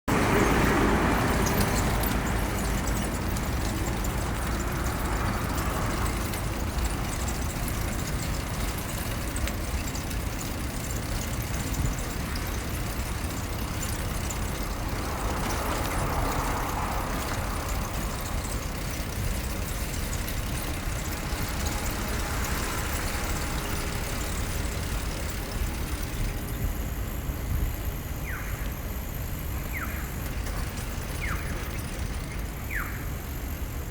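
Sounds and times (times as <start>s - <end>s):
motor vehicles passing: 0.1s - 27.1s
steady low traffic rumble: 0.1s - 33.9s.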